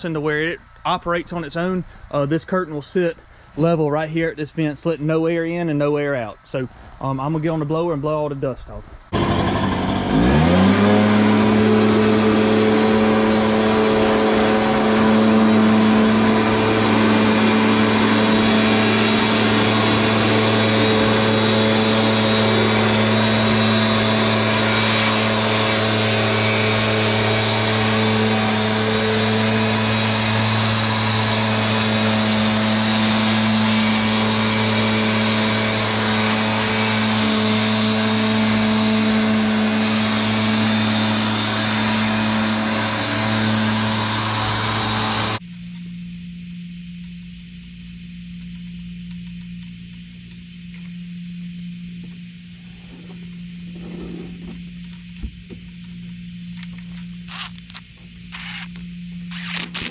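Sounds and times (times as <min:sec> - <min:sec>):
leaf blower running: 0:09.1 - 0:45.4, 0:51.9 - 0:59.9.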